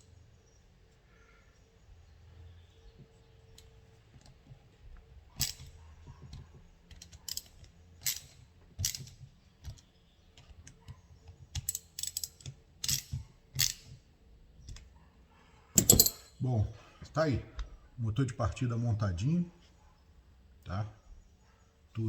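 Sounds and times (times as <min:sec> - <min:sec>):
tools and metal parts clicking: 0:05.4 - 0:09.8, 0:10.4 - 0:14.8, 0:15.8 - 0:16.4.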